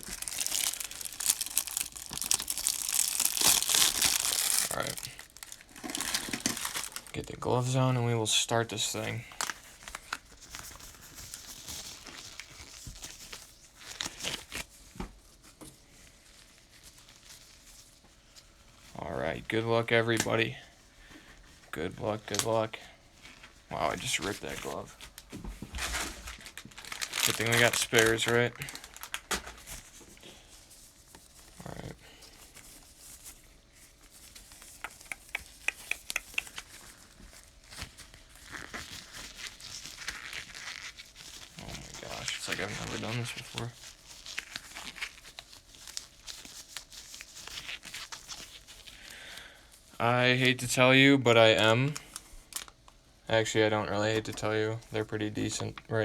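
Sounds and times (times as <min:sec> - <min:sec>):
disposable gloves crinkling: 0:00.0 - 0:08.1, 0:08.7 - 0:56.0
sharp plastic ticks: 0:34.6 - 0:36.6.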